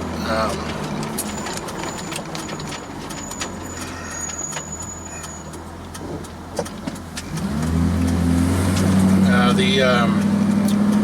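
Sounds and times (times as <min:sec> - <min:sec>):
truck engine idling and revving: 0:00.0 - 0:11.0.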